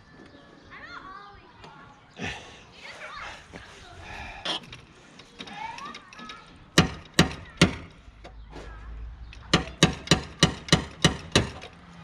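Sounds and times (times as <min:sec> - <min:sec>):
hammer knocking on metal: 0:06.8 - 0:07.9, 0:09.5 - 0:11.6.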